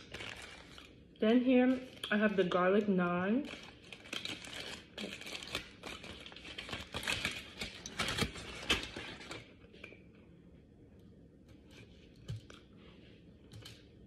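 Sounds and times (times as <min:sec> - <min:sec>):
food packaging crinkling: 0:00.0 - 0:10.0.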